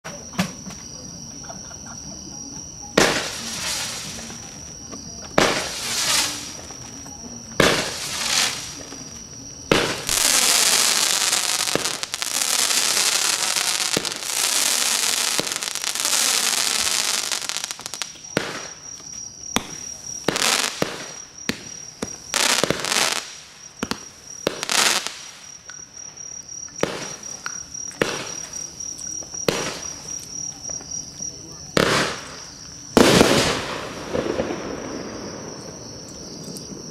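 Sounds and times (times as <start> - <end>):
fireworks firing: 2.9 - 26.0, 26.7 - 30.3, 31.7 - 36.9
high insect-like trill: 10.0 - 18.0.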